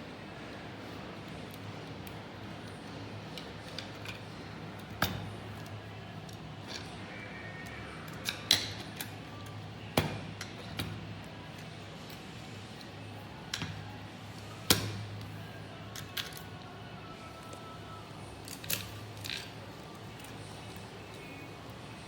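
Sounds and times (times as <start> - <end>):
clicks and knocks of tools: 15.9 - 16.6.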